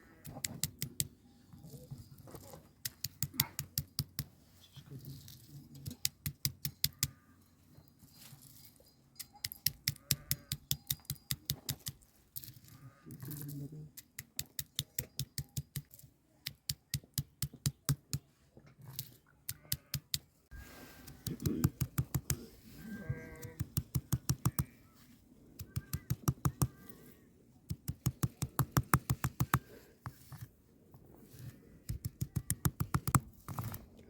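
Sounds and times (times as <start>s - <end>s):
rapid sharp taps: 21.2s - 22.4s, 27.7s - 29.6s.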